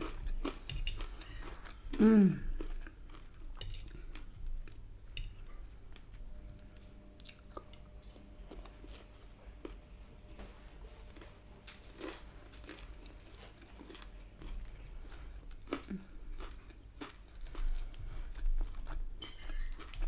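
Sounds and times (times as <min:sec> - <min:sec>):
chewing and biting food: 0:00.0 - 0:06.2, 0:10.9 - 0:20.0
person humming: 0:02.0 - 0:02.6.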